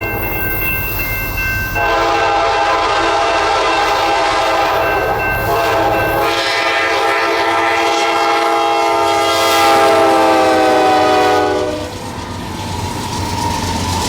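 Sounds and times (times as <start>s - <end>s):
train rumble: 0.0s - 14.0s
locomotive air horn: 1.8s - 12.1s.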